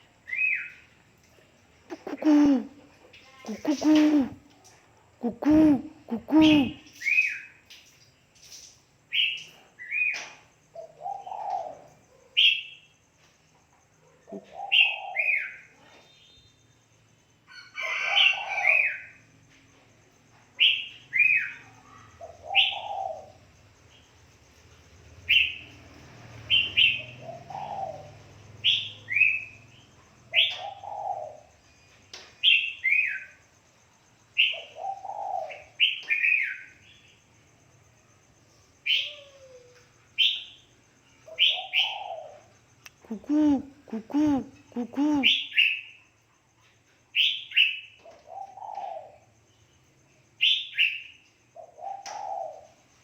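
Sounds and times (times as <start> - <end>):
dove cooing: 1.9 - 4.5, 5.2 - 7.2, 10.8 - 12.0, 14.3 - 15.6, 22.0 - 23.4, 26.5 - 29.3, 30.3 - 31.5, 34.4 - 36.4, 41.3 - 45.7, 48.0 - 49.3, 51.6 - 52.8.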